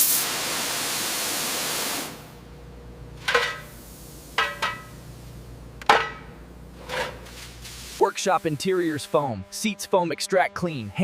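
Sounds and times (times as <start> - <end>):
compressed air hissing: 0.0 - 2.3, 7.2 - 9.2.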